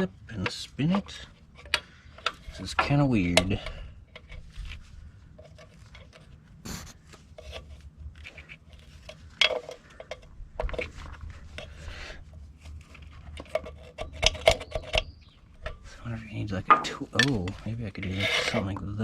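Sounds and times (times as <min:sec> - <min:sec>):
metal clinking and scraping: 0:07.3 - 0:11.7.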